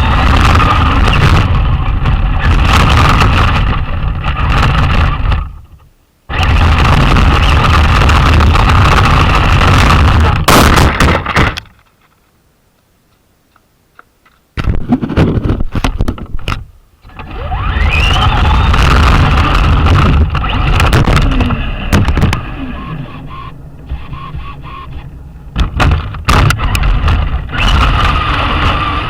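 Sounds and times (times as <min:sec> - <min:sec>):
electric motor whine: 0:00.0 - 0:05.6, 0:06.3 - 0:10.5, 0:17.0 - 0:29.0
rc truck wheels rumbling and rattling: 0:00.0 - 0:12.2, 0:14.6 - 0:29.0.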